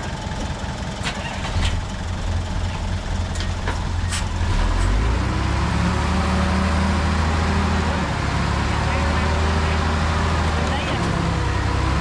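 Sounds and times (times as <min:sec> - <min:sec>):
heavy diesel engine rumbling: 0:00.0 - 0:12.0.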